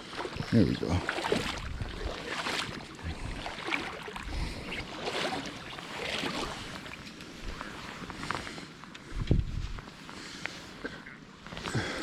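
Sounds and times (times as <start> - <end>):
river water sloshing around legs: 0.0 - 8.8.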